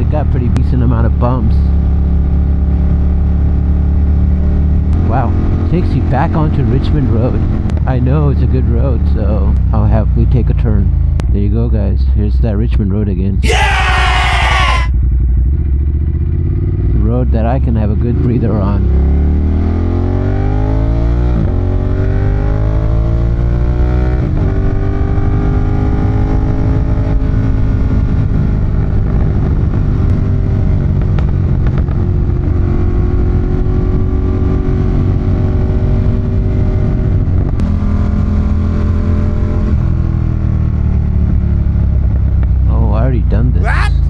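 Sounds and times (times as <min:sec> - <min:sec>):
motorcycle engine accelerating: 0:14.6 - 0:17.0, 0:18.8 - 0:42.6.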